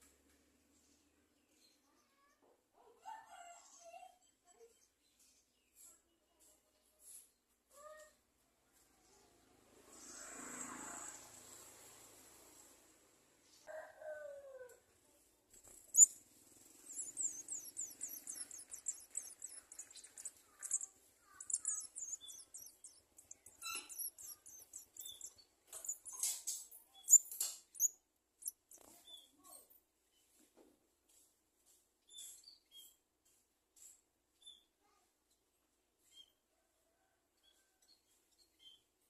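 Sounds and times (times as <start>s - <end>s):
nestlings begging chirps: 15.6s - 29.3s.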